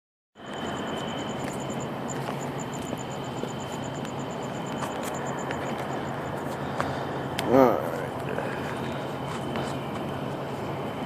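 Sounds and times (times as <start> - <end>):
rapid high-pitched pulsing chirp: 0.4 - 6.6
engines humming: 0.4 - 11.0
high whine: 0.4 - 11.0.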